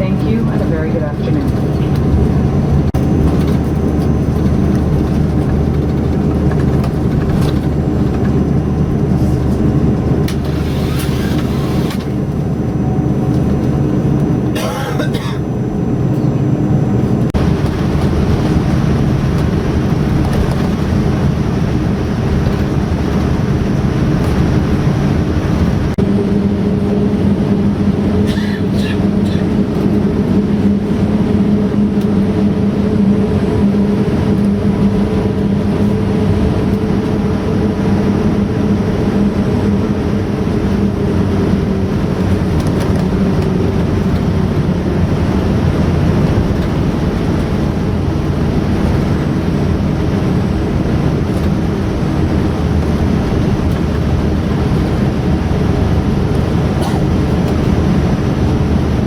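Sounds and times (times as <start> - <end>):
jet engine cabin hum: 0.0 - 59.0.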